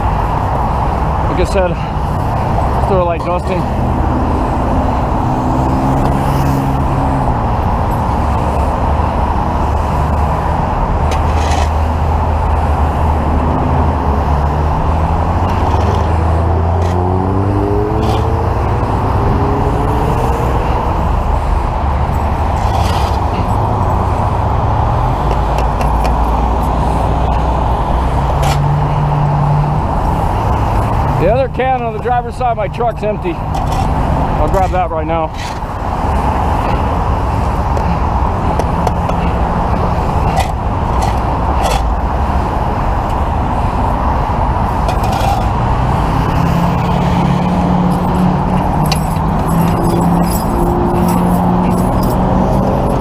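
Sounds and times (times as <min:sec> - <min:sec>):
engine humming: 0:00.0 - 0:53.0
freeway traffic noise: 0:00.0 - 0:53.0
sharp scrapes or knocks: 0:11.1 - 0:11.8, 0:22.6 - 0:23.5
vehicle accelerating past: 0:12.8 - 0:21.2, 0:45.5 - 0:53.0.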